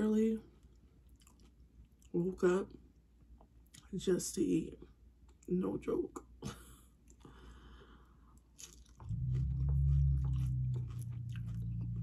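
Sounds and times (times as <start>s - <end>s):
low steady hum: 0.0s - 12.0s
crunching and chewing chips: 0.6s - 2.2s, 7.0s - 12.0s.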